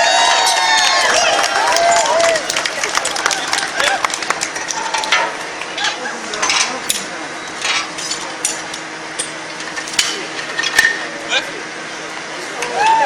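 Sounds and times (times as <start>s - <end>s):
metal tools clinking: 5.8s - 11.0s.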